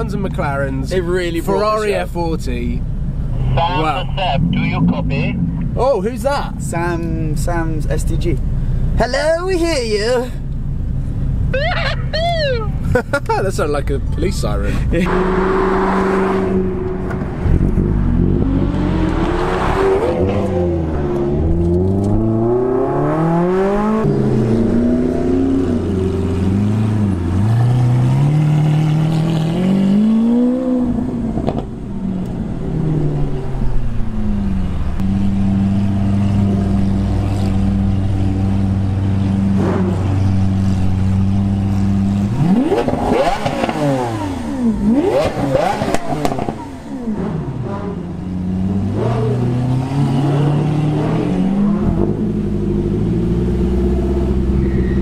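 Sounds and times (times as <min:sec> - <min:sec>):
car engines revving: 0:00.0 - 0:09.0, 0:09.8 - 0:55.0
car engine idling: 0:00.0 - 0:15.2.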